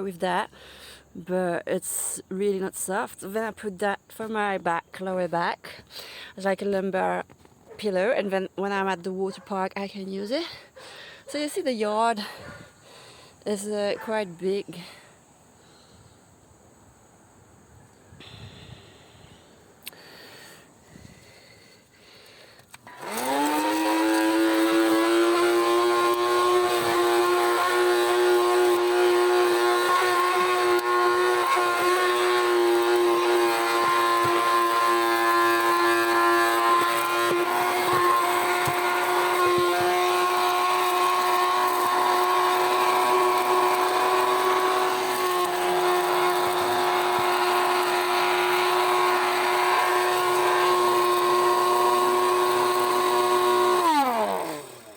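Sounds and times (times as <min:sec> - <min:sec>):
handheld vacuum cleaner whine: 0:18.2 - 0:20.0, 0:20.9 - 0:54.9.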